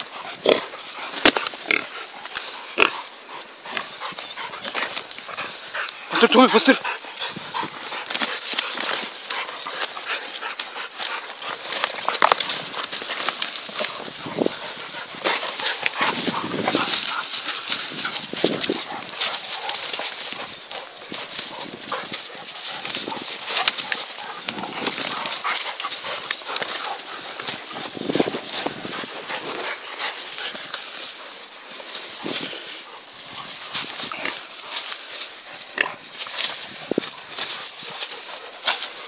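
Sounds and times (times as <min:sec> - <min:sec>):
dogs growling: 0:00.0 - 0:39.0
scuffling and thuds: 0:11.3 - 0:39.0.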